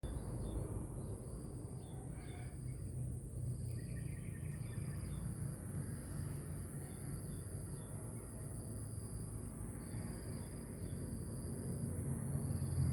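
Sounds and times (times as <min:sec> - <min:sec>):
bird chirps: 0:03.7 - 0:05.2.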